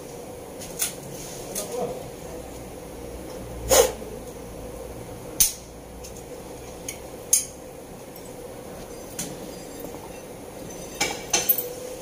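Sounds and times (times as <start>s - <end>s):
metal tools clinking: 8.1s - 12.0s.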